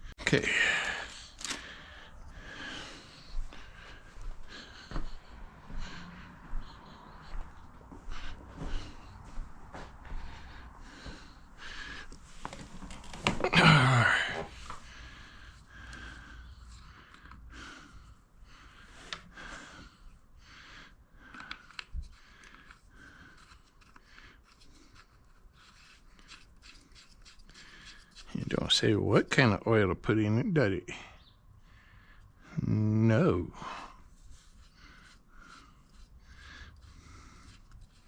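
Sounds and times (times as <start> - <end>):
parts and tools clicking: 1.1 - 1.6, 21.3 - 28.3.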